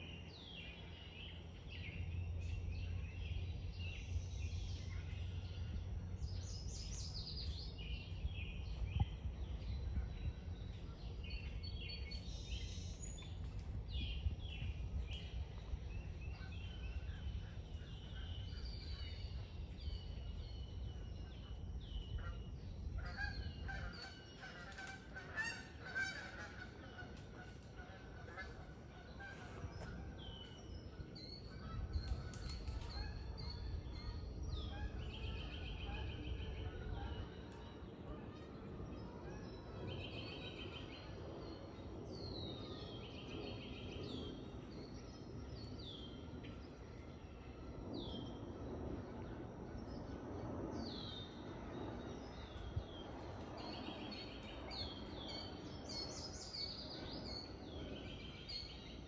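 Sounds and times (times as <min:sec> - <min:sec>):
songbirds calling: 0:00.0 - 0:59.0
low rumble: 0:01.2 - 0:24.4.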